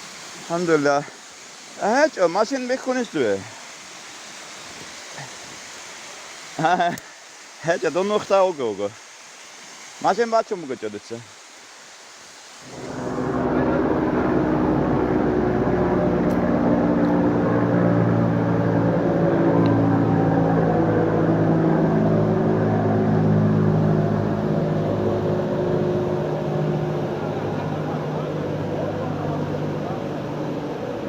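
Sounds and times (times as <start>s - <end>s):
vehicle engine running: 12.6s - 31.0s.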